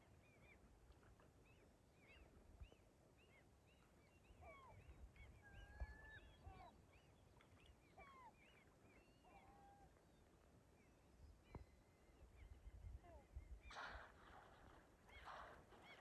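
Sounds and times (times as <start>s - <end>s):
birds chirping faintly: 0.0s - 16.0s.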